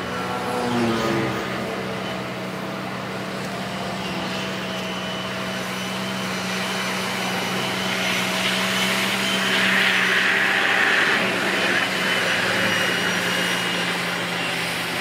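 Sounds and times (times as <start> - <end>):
heavy diesel engine droning: 0.0 - 15.0
hiss: 9.4 - 14.1.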